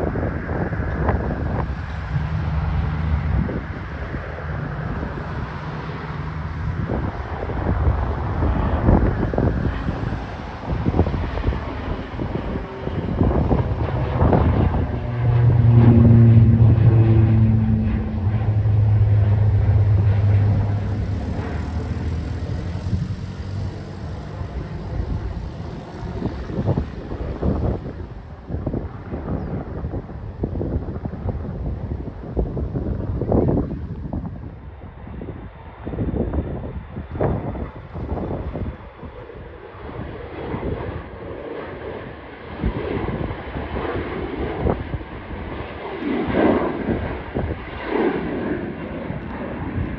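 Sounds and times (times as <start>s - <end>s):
airplane engine noise: 0.0s - 49.9s
wind buffeting microphone: 0.0s - 49.9s
low steady hum: 12.2s - 25.2s.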